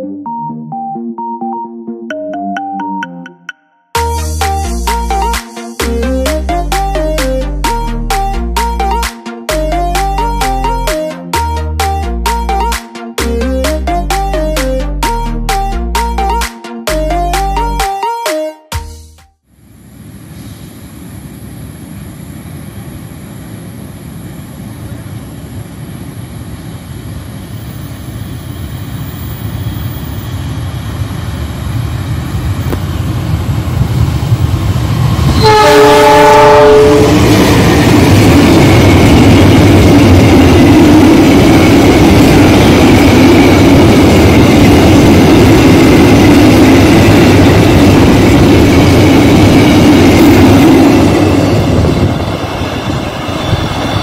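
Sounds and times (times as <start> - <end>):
freight train wheels rumbling: 21.2 - 54.0
train horn blast: 35.3 - 37.5.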